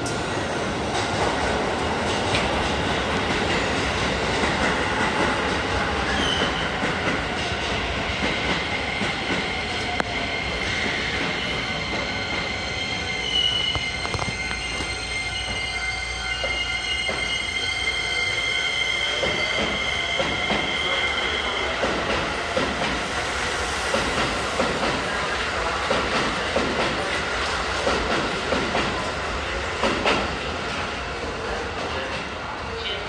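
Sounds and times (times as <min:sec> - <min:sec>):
train high-pitched whine: 0:04.7 - 0:27.7.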